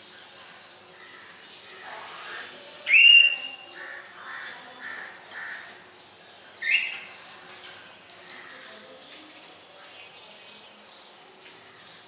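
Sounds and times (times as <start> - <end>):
bird chatter: 0.0 - 12.0
bird whistled call: 2.9 - 3.6.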